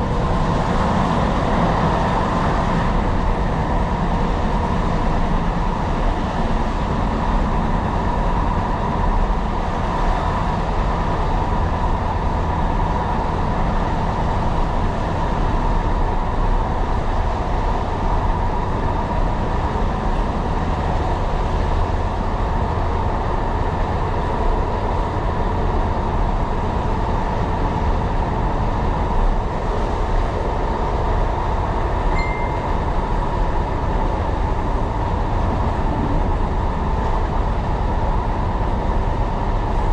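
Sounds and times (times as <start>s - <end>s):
train wheels rumbling on rails: 0.0s - 39.9s
short faint beep: 32.1s - 32.9s.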